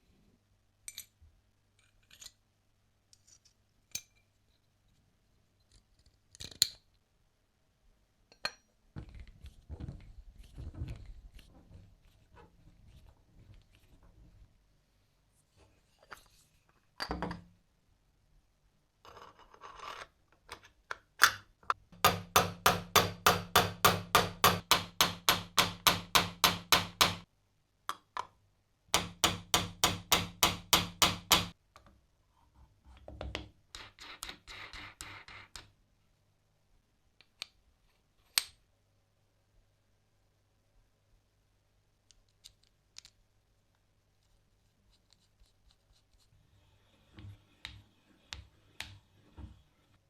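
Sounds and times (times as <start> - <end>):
knocks and scrapes from handling: 9.0 - 14.5, 46.9 - 50.0.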